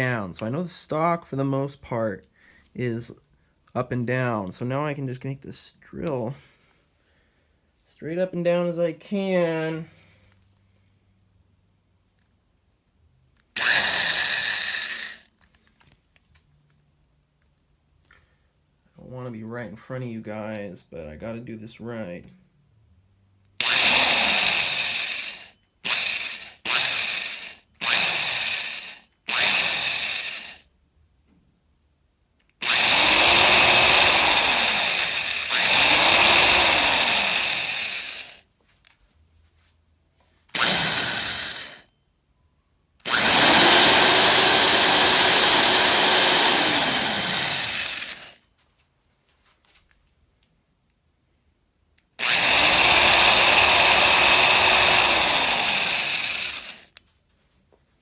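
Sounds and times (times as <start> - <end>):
electric drill whining: 13.5 - 15.4, 23.6 - 30.7, 32.6 - 38.4, 40.5 - 41.9, 43.0 - 48.4, 52.2 - 57.0.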